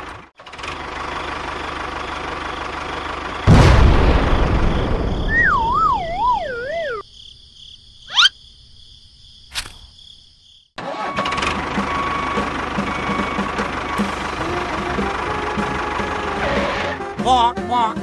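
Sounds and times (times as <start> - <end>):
small engine running: 0.0 - 3.5, 10.8 - 17.1
steady high tone: 5.3 - 7.0
wavering falling tone: 5.3 - 7.0.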